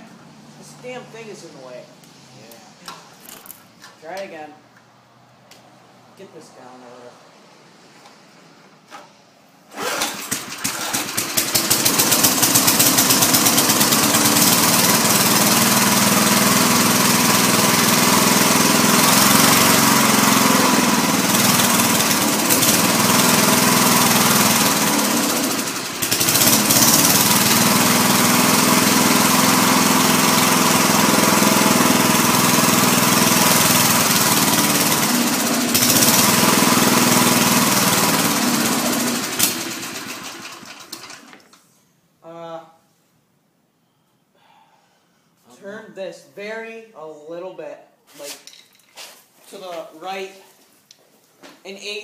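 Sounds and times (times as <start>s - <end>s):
small lawn mower engine: 9.7s - 41.6s.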